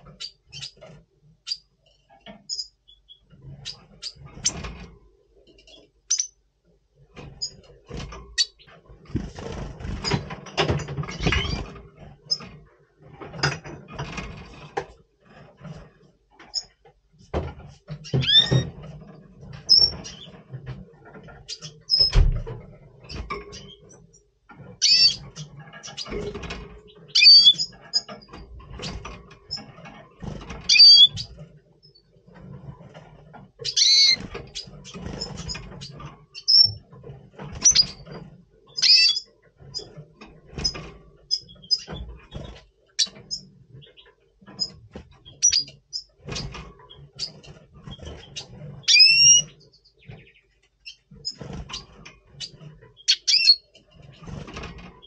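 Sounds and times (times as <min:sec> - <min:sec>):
bird chirping and twittering: 0:00.0 - 0:04.7, 0:05.5 - 0:06.4, 0:08.3 - 0:12.5, 0:17.9 - 0:18.8, 0:19.6 - 0:22.4, 0:24.8 - 0:32.2, 0:33.6 - 0:55.0
soft knocks and flutters in cage: 0:00.0 - 0:55.0.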